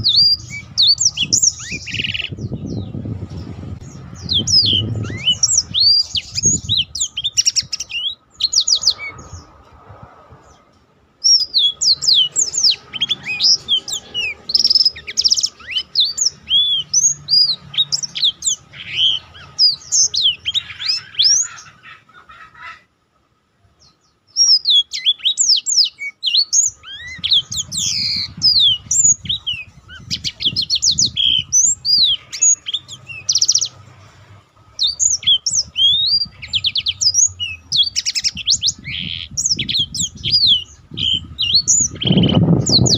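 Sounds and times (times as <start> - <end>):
canary singing trills: 0.0 - 9.7, 10.4 - 22.9, 23.8 - 42.9.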